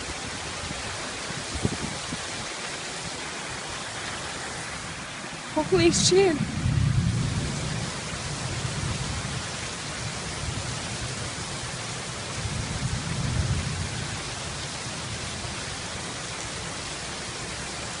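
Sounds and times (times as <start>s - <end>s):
heavy rain: 0.0s - 18.0s
thunder rumble: 5.0s - 15.8s.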